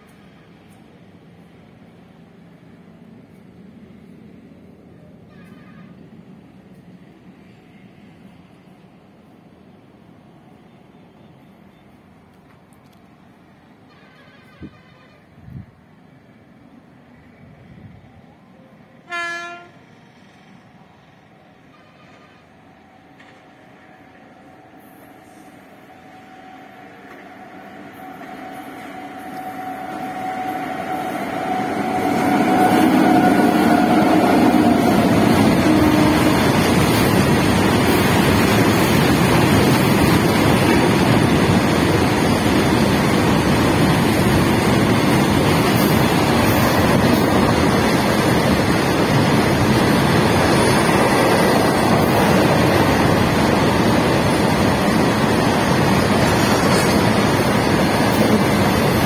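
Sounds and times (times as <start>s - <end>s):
goods train wheels rolling: 26.2s - 59.0s.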